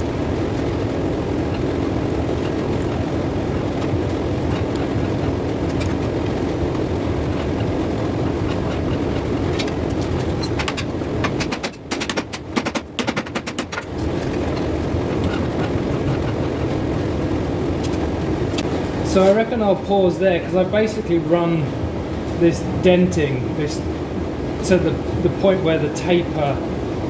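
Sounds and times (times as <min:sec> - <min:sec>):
sharp metallic clicks and knocks: 0:06.7 - 0:16.8.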